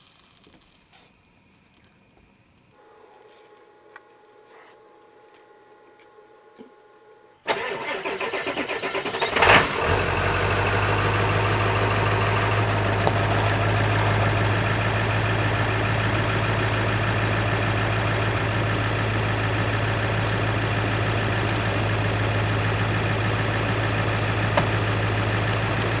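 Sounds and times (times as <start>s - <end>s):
truck engine starting and idling: 7.5s - 26.0s.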